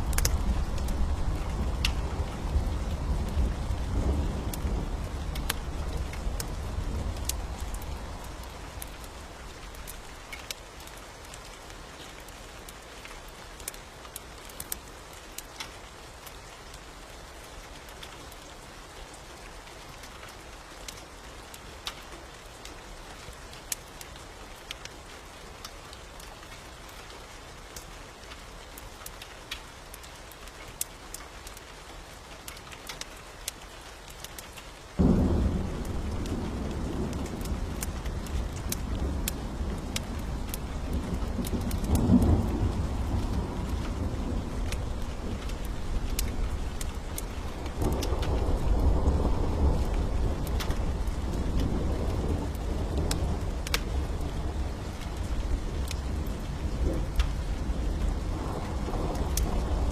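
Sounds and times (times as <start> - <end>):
thunder rumbling: 0.0 - 10.1, 35.0 - 59.9
rain falling: 0.0 - 59.9
sharp drips and clicks: 0.0 - 59.9.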